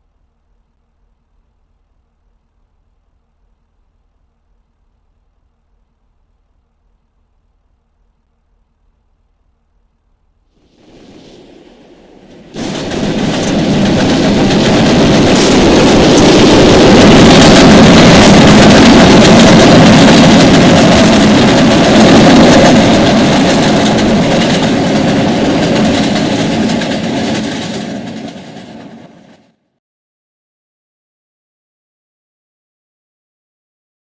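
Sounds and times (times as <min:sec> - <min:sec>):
train passing: 0:10.6 - 0:29.6.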